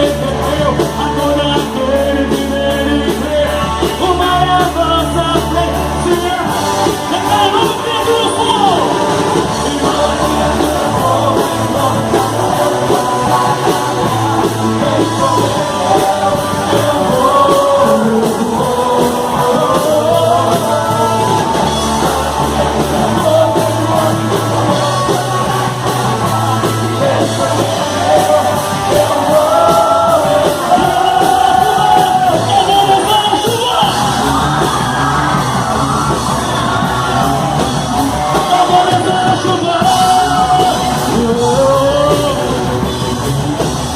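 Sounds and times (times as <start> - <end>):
band playing bass and drums: 0.0 - 43.9
voices singing: 0.0 - 43.9
people shouting: 16.8 - 41.3.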